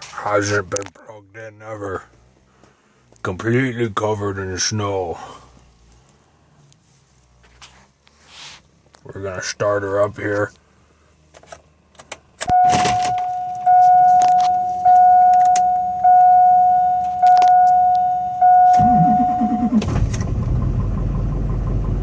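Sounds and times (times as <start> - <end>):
key clicking in ignition: 11.4 - 15.8, 17.0 - 18.8
dashboard warning chime: 12.5 - 19.8
diesel engine running: 18.4 - 22.0.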